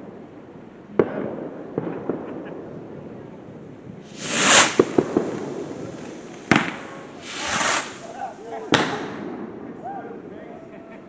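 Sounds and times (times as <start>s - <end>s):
firework hissing rush: 4.0s - 9.2s
crackling firework pops: 4.1s - 9.4s
small firework pops: 4.1s - 9.4s
firework bang: 4.1s - 9.5s.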